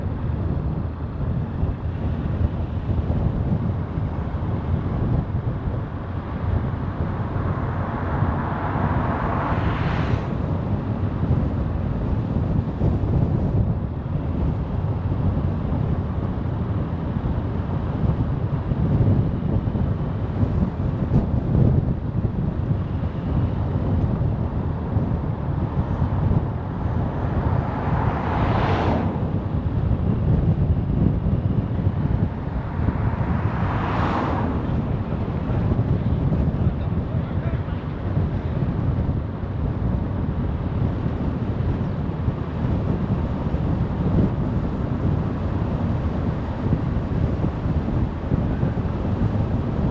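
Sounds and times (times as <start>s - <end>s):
car road and wind noise: 0.0s - 49.9s
passing vehicle whoosh: 0.0s - 49.9s.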